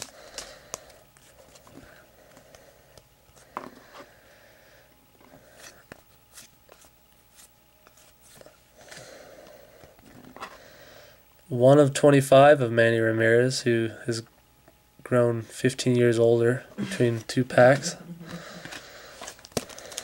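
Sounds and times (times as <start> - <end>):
cards being flipped through: 0.0 - 3.4, 5.6 - 9.0, 18.5 - 20.0.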